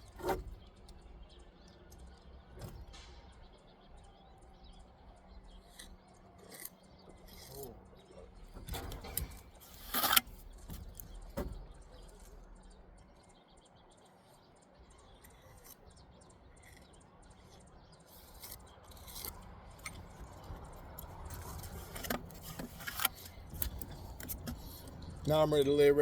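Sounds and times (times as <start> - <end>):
trowel scraping on brick: 9.1 - 10.4.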